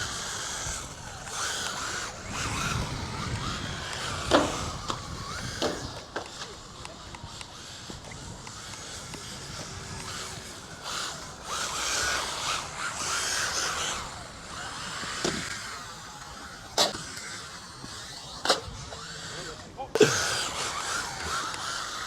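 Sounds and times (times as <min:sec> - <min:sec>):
rc car motor whining: 0:00.0 - 0:22.0.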